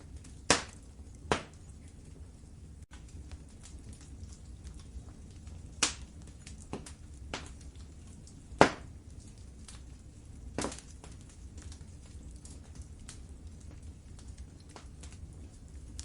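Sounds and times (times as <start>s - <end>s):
low rumble of flames: 0.0s - 16.0s
wood fire crackling: 0.0s - 16.0s
sharp pops and snaps: 0.4s - 1.6s, 5.8s - 9.9s, 10.5s - 13.2s.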